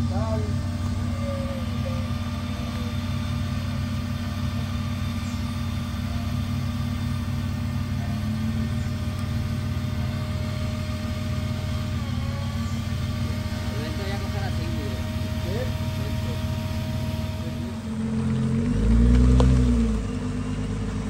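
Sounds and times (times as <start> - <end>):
vehicle engine idling hum: 0.0 - 21.0.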